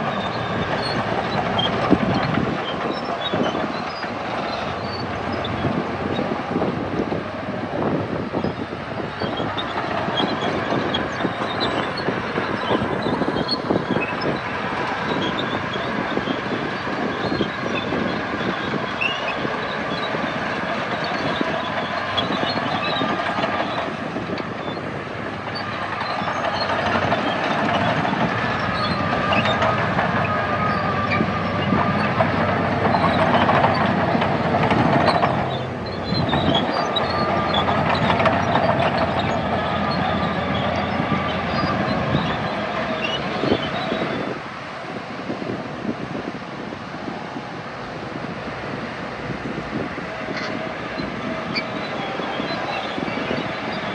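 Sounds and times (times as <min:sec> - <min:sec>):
bulldozer diesel engine running: 0:00.0 - 0:53.9
steel tracks clanking: 0:00.0 - 0:53.9.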